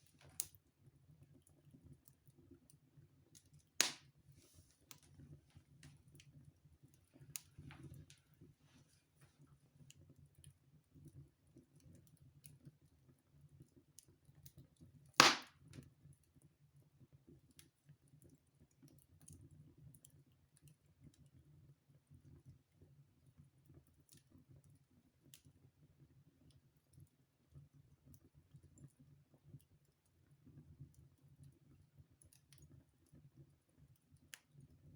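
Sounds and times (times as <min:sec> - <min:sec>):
wood fire crackling: 0:00.0 - 0:00.6, 0:03.3 - 0:06.3, 0:06.9 - 0:09.4, 0:15.2 - 0:15.5
loud pop from fire: 0:03.8 - 0:04.0, 0:15.2 - 0:15.5.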